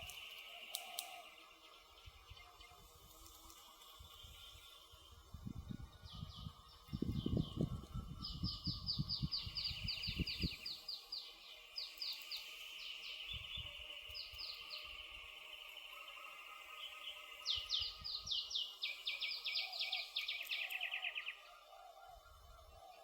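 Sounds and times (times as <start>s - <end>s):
songbird trilling: 17.0s - 23.0s.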